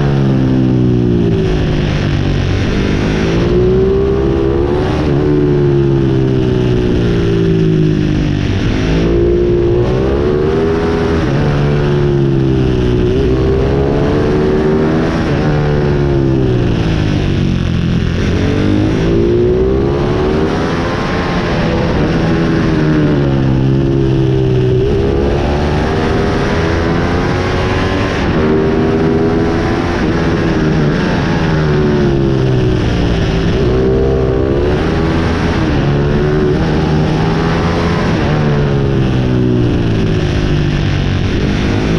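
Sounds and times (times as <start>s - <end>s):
motorbike engine revving: 0.0s - 41.9s.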